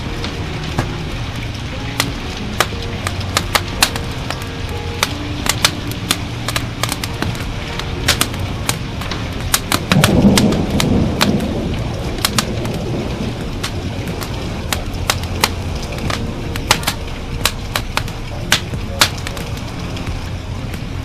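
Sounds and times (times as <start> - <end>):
rain hissing: 0.0 - 21.0
wood fire crackling and popping: 0.0 - 21.0
thunder rolling: 6.5 - 19.6.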